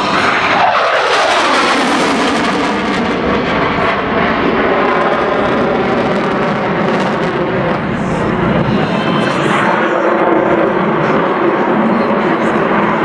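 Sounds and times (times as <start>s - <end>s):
airplane engine flying by: 0.0s - 13.0s.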